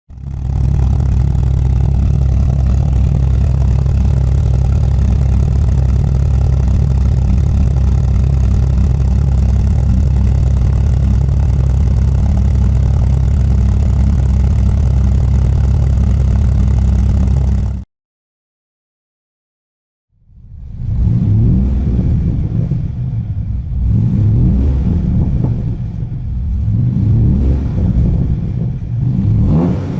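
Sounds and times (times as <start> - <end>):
car engine idling: 0.1 - 17.8.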